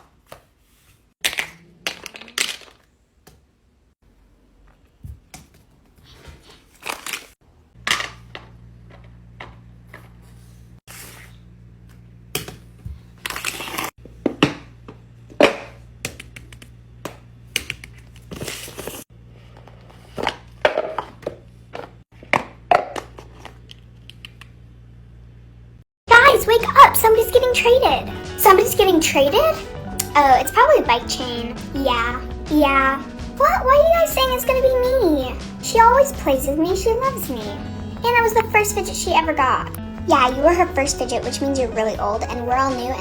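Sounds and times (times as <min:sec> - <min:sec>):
fidget toys clicking and crinkling: 0:01.2 - 0:02.9.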